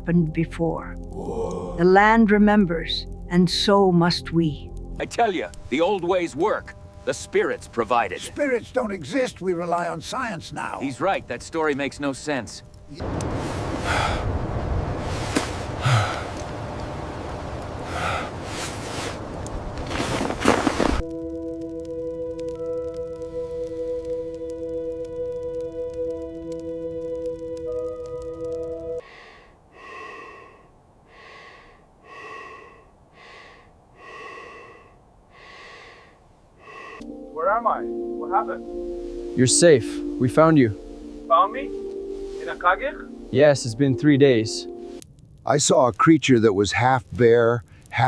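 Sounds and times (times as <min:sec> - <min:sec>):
person gasping for breath: 0:01.2 - 0:01.8, 0:15.8 - 0:16.4, 0:29.0 - 0:37.0.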